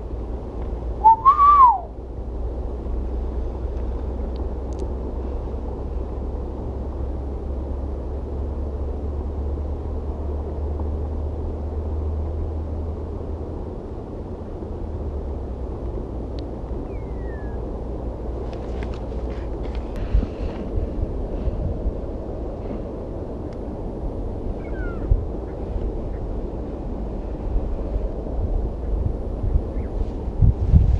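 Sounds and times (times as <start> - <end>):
outdoor background rumble and hiss: 0.0 - 30.9
brief falling call: 1.0 - 1.9.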